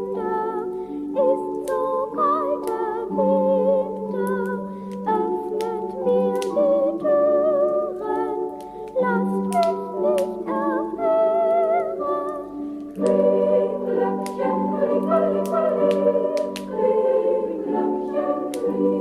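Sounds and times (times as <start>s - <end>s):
voices singing in choral style: 0.0s - 19.0s
fireplace fire crackling: 0.6s - 19.0s.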